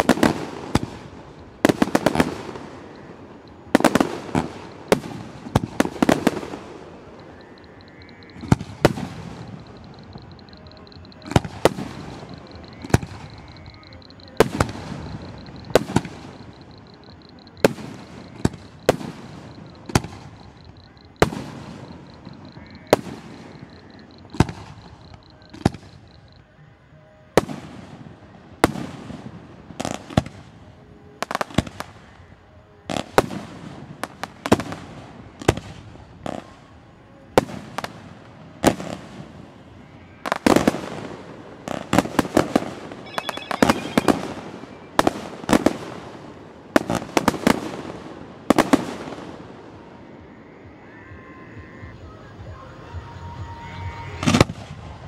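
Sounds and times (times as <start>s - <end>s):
firework shells bursting: 0.0s - 26.1s, 40.2s - 49.2s.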